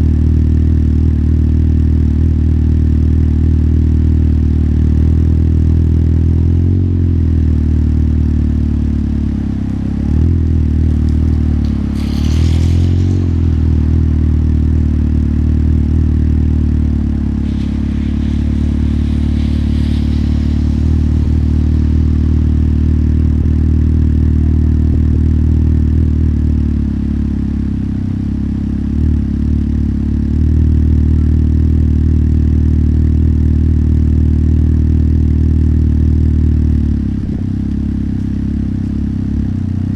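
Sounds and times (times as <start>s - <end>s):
motorcycle engine running: 0.0s - 39.9s
brief hiss: 9.7s - 24.6s.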